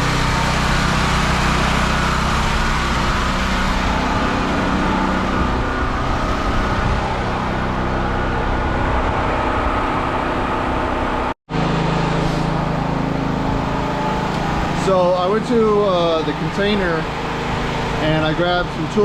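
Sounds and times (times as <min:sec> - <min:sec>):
generator engine running: 0:00.0 - 0:19.0.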